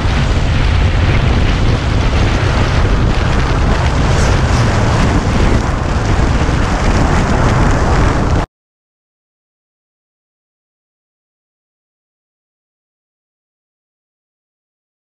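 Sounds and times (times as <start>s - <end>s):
low motorcycle rumble: 0.0s - 8.4s
wind buffeting microphone: 0.0s - 8.5s.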